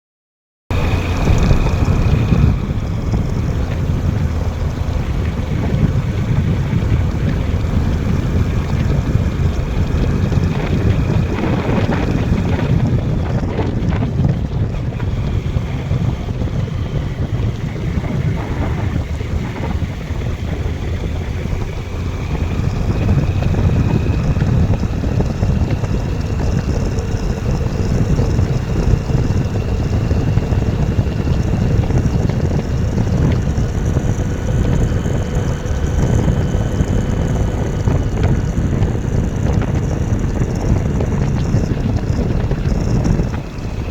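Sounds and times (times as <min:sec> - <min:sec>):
faint engine tone: 0:00.7 - 0:43.9
wind buffeting microphone: 0:00.7 - 0:43.9.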